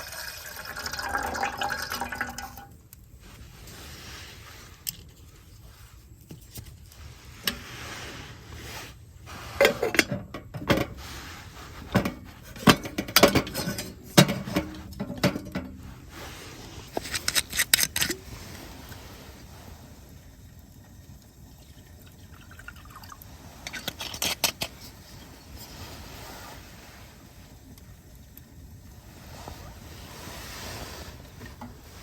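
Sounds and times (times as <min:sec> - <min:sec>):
metal cookware clinking: 0:12.0 - 0:15.9.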